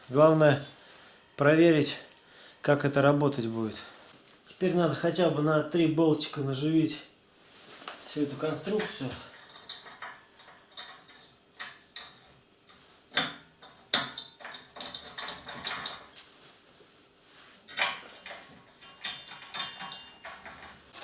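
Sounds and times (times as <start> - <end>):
metallic clinks of steel parts: 17.7 - 20.7.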